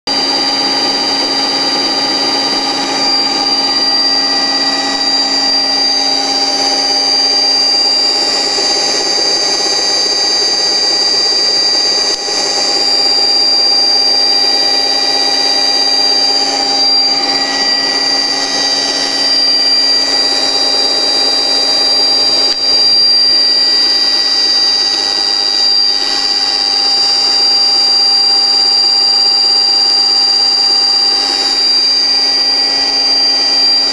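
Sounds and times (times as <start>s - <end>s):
electric motor whine and hum: 0.1s - 33.9s.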